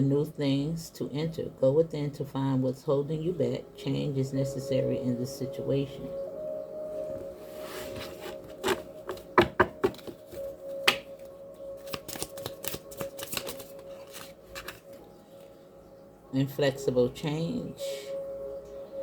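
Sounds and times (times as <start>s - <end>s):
faint steady background tone: 0.0s - 19.0s
cards being shuffled: 7.8s - 15.0s.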